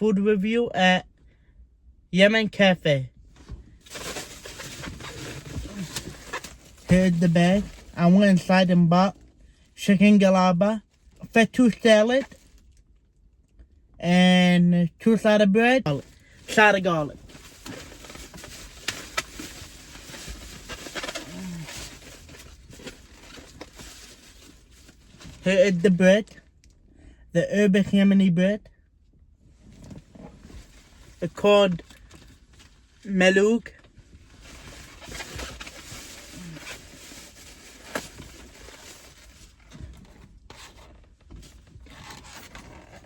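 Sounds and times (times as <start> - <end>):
paper bag rustling: 3.8 - 8.5, 16.0 - 25.5.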